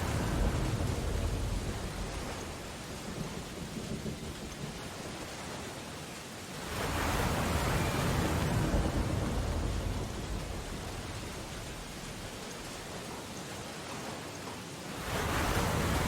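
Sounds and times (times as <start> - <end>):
ocean wave crashing: 0.0 - 3.0, 6.6 - 12.9, 15.0 - 16.0
rain on window glass: 0.0 - 16.0.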